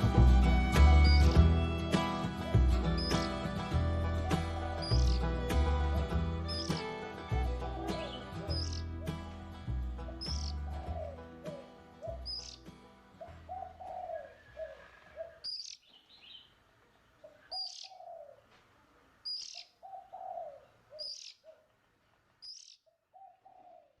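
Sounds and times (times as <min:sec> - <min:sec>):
faint music: 0:00.0 - 0:15.5
short high bird chirp: 0:03.0 - 0:03.3, 0:04.8 - 0:05.2, 0:08.5 - 0:08.8, 0:10.2 - 0:10.6, 0:15.4 - 0:16.5
low cooing notes: 0:10.0 - 0:12.4, 0:13.2 - 0:15.4.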